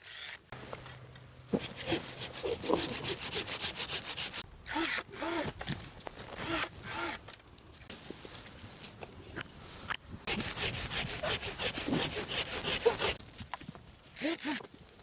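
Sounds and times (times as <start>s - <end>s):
hand saw cutting wood: 0.0s - 5.6s, 6.3s - 7.2s, 10.3s - 13.2s.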